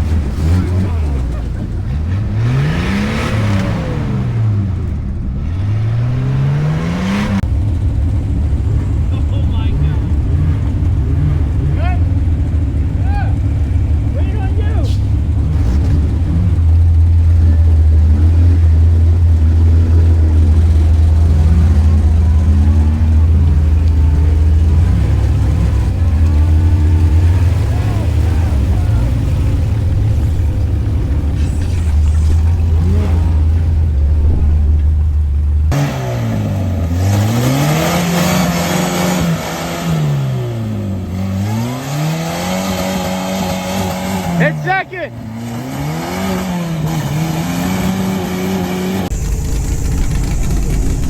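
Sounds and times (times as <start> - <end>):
engine droning: 0.0 - 51.0
low drone: 15.0 - 36.9, 49.0 - 51.0.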